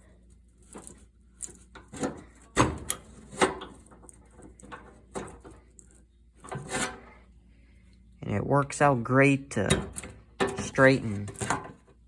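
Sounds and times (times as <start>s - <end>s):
metal clunks and creaks: 1.6s - 5.7s, 9.6s - 12.0s.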